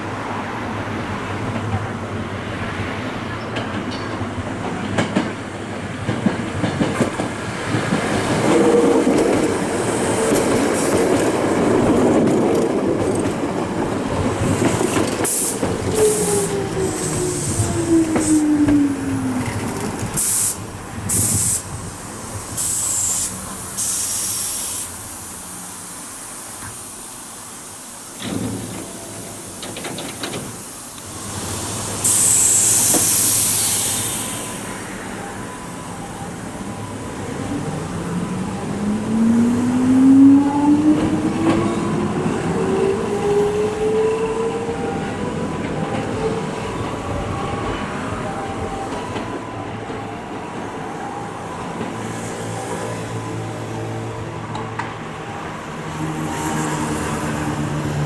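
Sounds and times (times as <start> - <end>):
air hiss from train: 5.4 - 40.1, 46.4 - 58.0.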